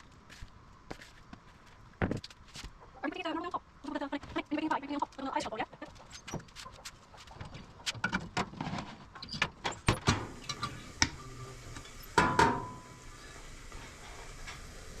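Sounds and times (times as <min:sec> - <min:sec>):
metallic clank ringing: 0:12.2 - 0:13.0.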